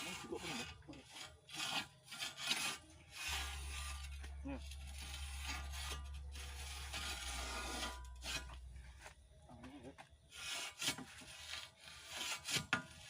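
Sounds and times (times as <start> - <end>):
rasping scrapes of hand drilling: 0.0 - 8.6, 10.3 - 13.0
steady low hum: 2.8 - 10.4.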